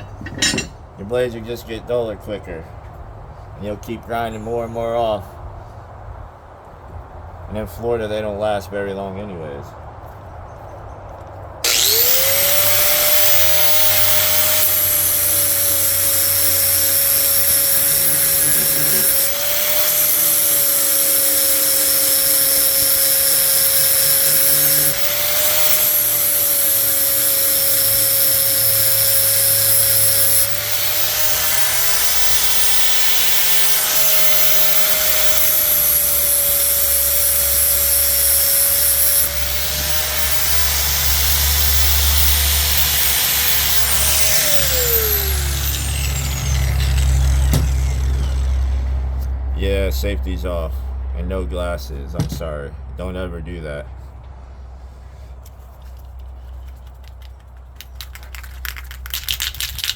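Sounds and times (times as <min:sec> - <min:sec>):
angle grinder whine: 0:00.0 - 0:00.8, 0:11.6 - 0:50.0
grinding on steel: 0:00.0 - 0:00.8, 0:11.6 - 0:49.3.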